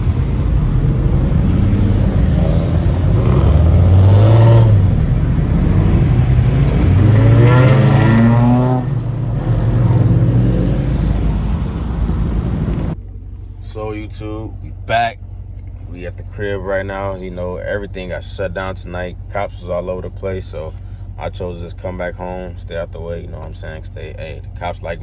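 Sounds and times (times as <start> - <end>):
car engine revving: 0.0 - 13.0
low engine drone: 0.0 - 23.6.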